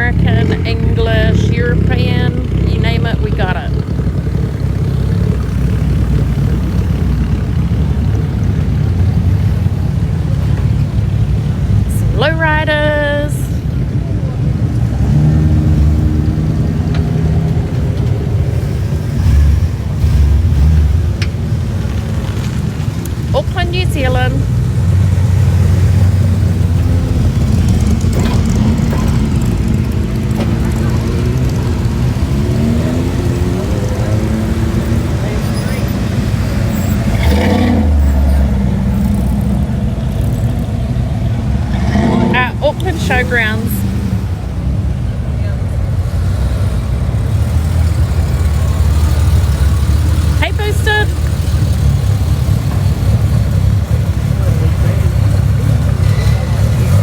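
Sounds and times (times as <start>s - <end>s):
car engine rumble: 0.0s - 57.0s.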